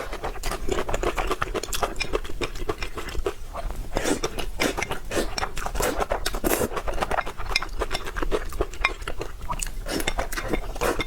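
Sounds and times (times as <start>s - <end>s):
wet chewing and smacking: 0.0s - 11.0s
utensils clinking against dish: 9.9s - 11.0s.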